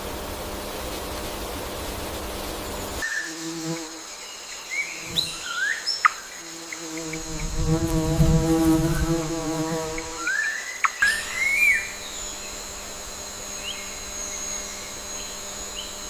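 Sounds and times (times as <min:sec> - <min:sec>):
flying insect buzzing: 0:00.1 - 0:16.0
high insect trill: 0:00.2 - 0:16.0
bird chirps: 0:09.0 - 0:12.6.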